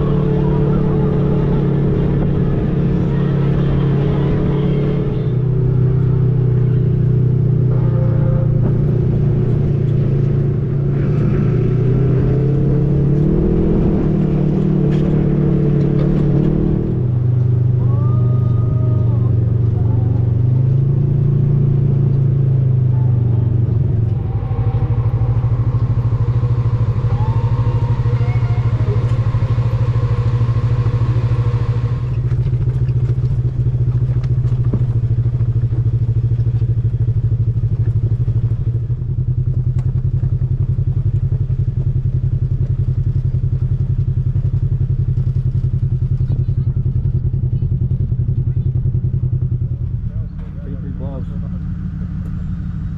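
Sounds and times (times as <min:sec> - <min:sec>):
utv engine running: 0:00.0 - 0:52.9
vehicle clatter and knocks: 0:32.1 - 0:37.0.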